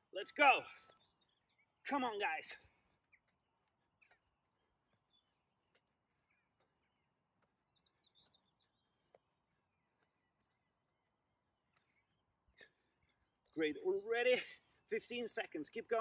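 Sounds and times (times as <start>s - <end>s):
faint bird chirps: 0.3s - 1.9s, 2.9s - 14.0s.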